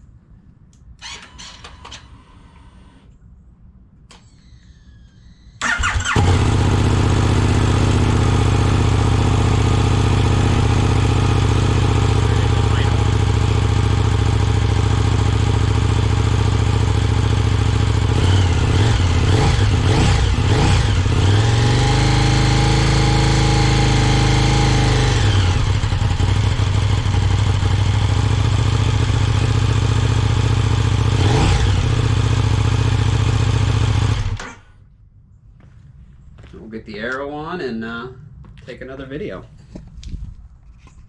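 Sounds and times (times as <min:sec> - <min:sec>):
motorcycle engine idling and revving: 0:05.6 - 0:34.8.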